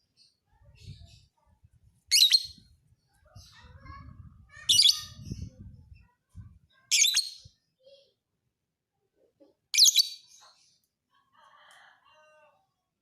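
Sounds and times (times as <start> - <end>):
bird high chirps: 2.1 - 2.7, 4.6 - 6.0, 6.8 - 7.6, 9.8 - 10.6
faint bird twittering: 2.1 - 3.4.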